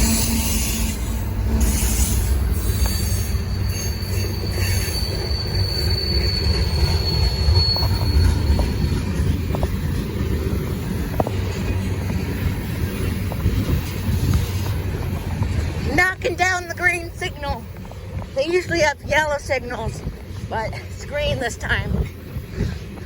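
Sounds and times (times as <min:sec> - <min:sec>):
high wheel squeal: 0:00.0 - 0:10.6
train wheels rumbling on rail: 0:00.0 - 0:23.0.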